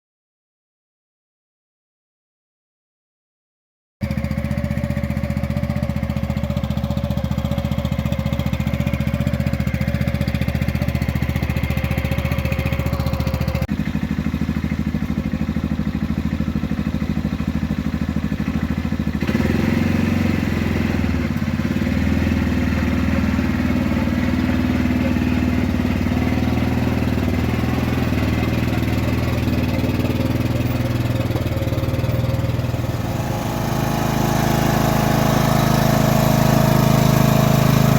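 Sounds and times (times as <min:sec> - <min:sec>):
small engine running: 0:04.0 - 0:37.9.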